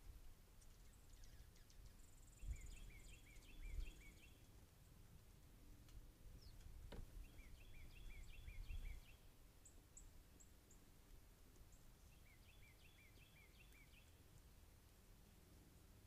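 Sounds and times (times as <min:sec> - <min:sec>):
songbird song: 0:00.0 - 0:16.0
low wind rumble: 0:01.4 - 0:09.2.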